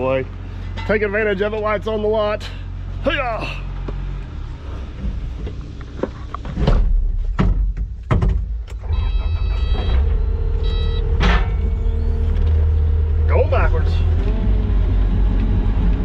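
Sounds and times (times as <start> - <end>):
diesel engine running: 0.0 - 7.3, 8.6 - 16.0
machine clunks and knocks: 4.9 - 12.8
short high electronic beeps: 8.8 - 12.3.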